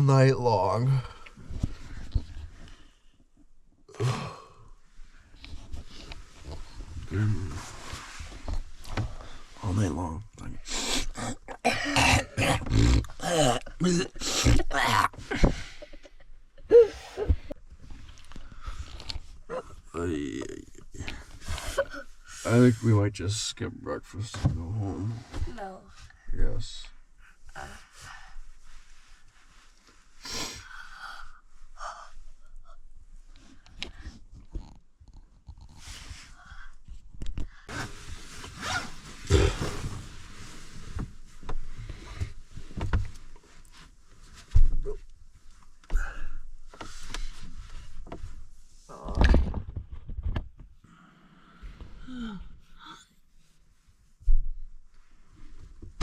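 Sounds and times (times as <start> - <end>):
person breathing closely: 30.2 - 32.9, 50.8 - 53.0.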